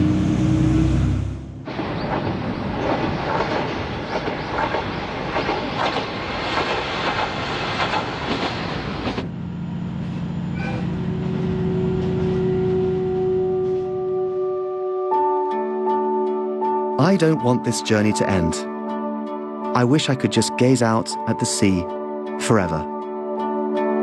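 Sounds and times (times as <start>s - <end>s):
low drone inside moving carriage: 0.0s - 14.5s
diesel railcar running on track: 0.0s - 14.7s
wheels clicking over rail joints: 2.0s - 9.3s.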